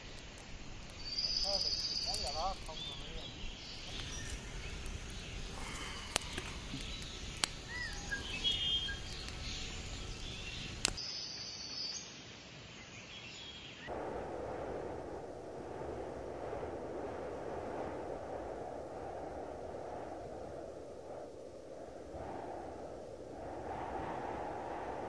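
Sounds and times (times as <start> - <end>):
sharp clicks: 0.0 - 9.6, 10.5 - 11.0
small birds chirping: 0.0 - 13.9
steady rushing noise: 13.9 - 25.0.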